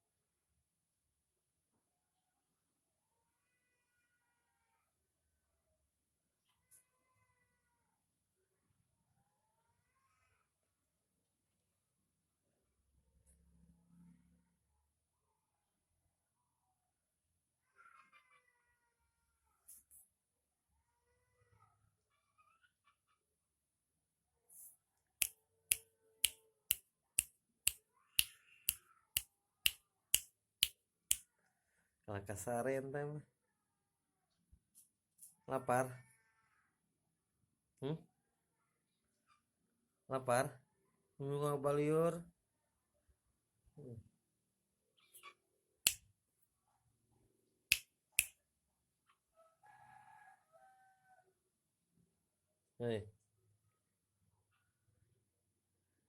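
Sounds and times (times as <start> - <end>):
finger snapping: 47.7 - 48.3
rooster crowing faintly: 49.3 - 51.4.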